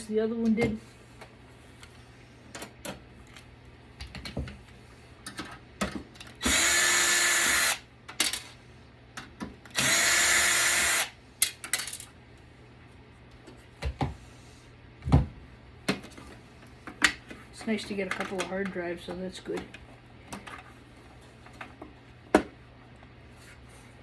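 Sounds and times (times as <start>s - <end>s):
power drill whining: 6.4s - 7.8s, 9.7s - 11.1s.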